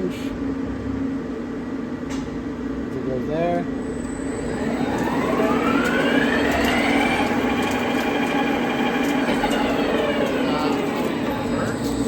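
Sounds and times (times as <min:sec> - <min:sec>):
lathe spindle whine: 0:03.8 - 0:12.0.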